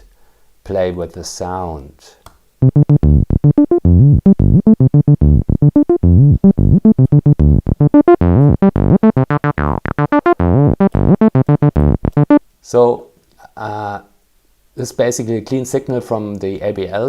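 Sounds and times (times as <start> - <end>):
synth acid bassline: 2.6 - 12.4.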